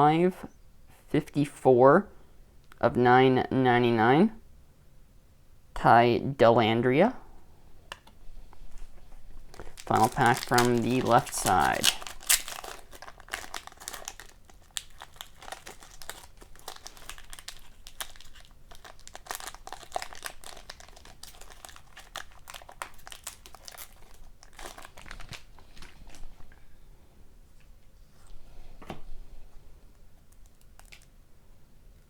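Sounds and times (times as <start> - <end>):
card pack wrapper crinkling and tearing: 9.3 - 26.3, 30.3 - 31.1.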